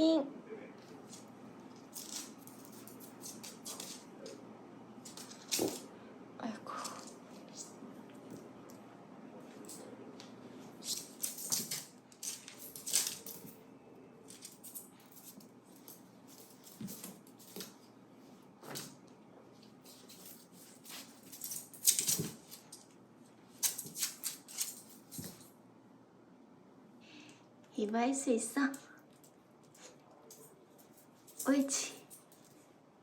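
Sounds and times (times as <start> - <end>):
dog scrabbling and rustling: 10.7 - 13.5.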